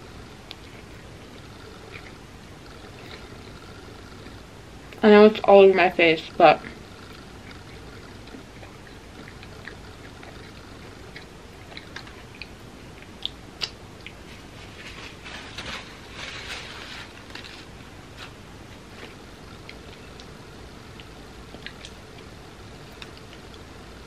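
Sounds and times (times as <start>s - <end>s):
chewing: 0.0s - 5.0s, 6.6s - 24.0s
wet mouth clicks: 6.6s - 14.2s.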